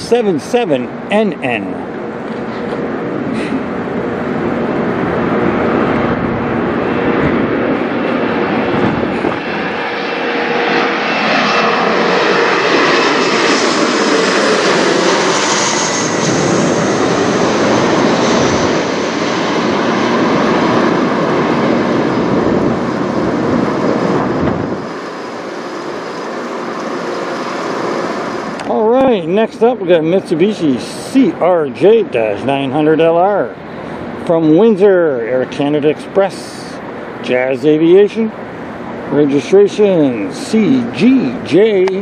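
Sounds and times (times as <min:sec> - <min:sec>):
jet passing overhead: 0:00.0 - 0:42.0.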